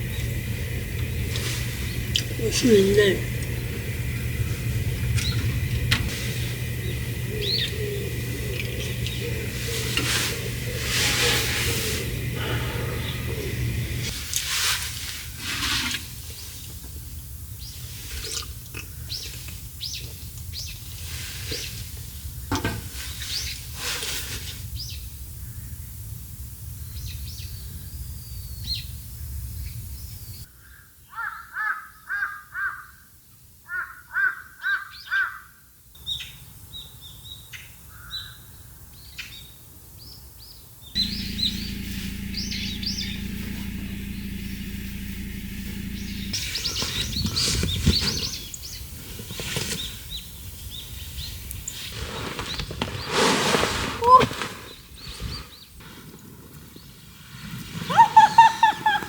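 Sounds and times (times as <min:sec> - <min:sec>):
birds chirping: 0:00.0 - 0:14.2, 0:41.0 - 0:48.8
low steady rumble: 0:00.0 - 0:14.2, 0:41.0 - 0:47.4.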